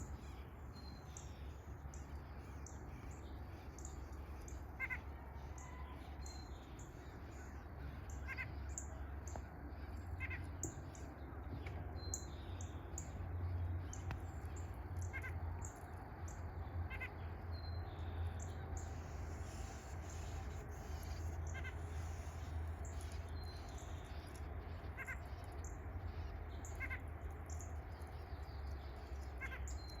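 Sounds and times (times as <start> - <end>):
low steady hum: 0.0 - 30.0
bird calling: 18.4 - 25.8.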